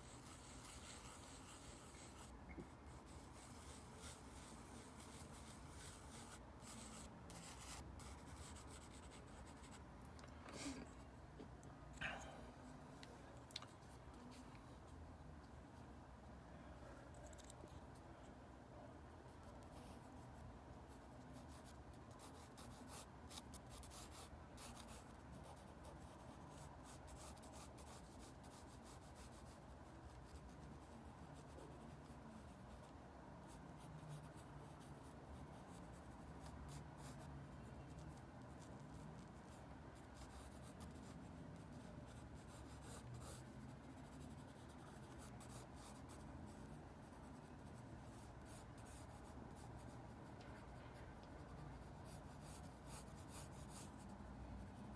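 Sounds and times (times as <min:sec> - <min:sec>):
drawing tool scratching paper: 0:00.0 - 0:02.3, 0:02.9 - 0:09.7.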